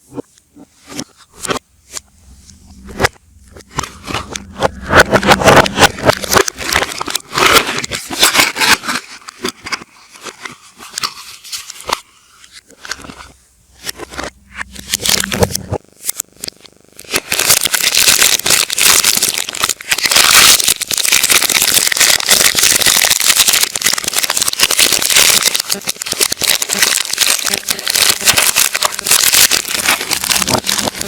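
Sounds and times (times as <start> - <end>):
packaging crinkling reversed: 1.3 - 9.3, 13.8 - 16.2, 17.0 - 31.0.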